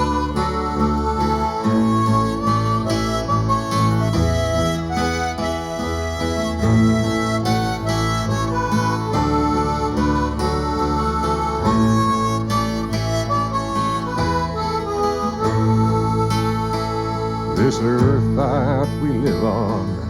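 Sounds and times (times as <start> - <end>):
harmonica melody: 0.0 - 20.0
strummed acoustic guitar: 0.0 - 20.0
person singing: 17.5 - 20.0.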